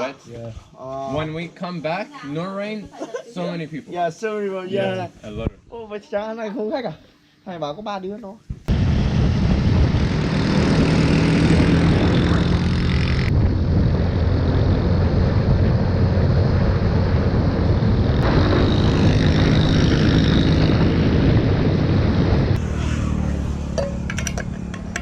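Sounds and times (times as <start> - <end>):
rushing wind and road noise: 8.7 - 25.0
motorbike engine running: 9.0 - 15.8, 18.2 - 25.0.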